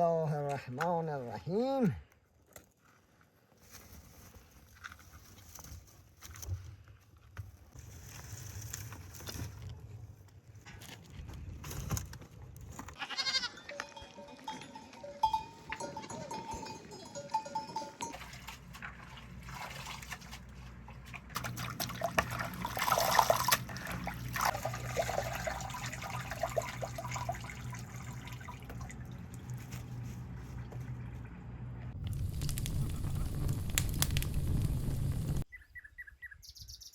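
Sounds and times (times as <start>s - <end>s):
farm animals calling: 13.0s - 14.3s.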